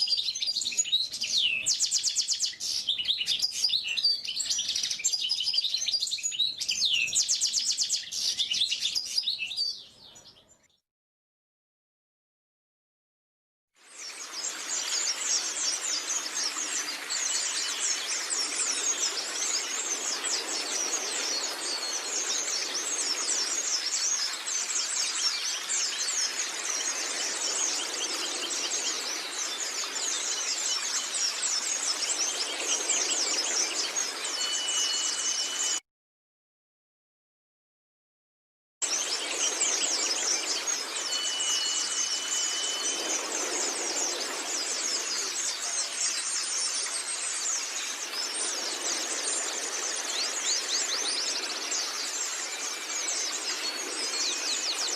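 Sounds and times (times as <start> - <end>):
bird twittering song: 0.0 - 10.8, 13.9 - 35.8, 38.8 - 54.9
bird whistle: 34.4 - 35.8, 41.1 - 43.1.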